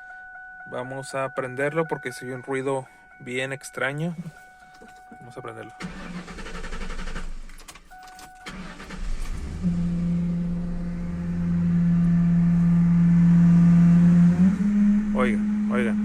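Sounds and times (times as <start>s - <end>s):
car engine starter cranking: 5.8s - 11.2s
pitched hum from air intake: 9.0s - 16.0s.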